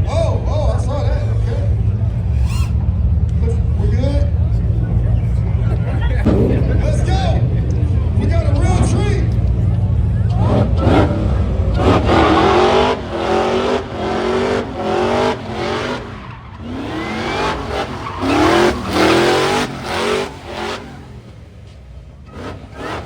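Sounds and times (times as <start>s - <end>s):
car engine revving hard: 10.3s - 23.0s.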